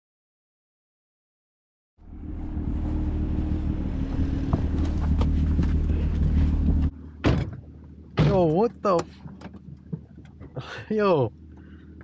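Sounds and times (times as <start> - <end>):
car engine running: 2.0 - 8.1
road and wind noise: 2.0 - 12.0.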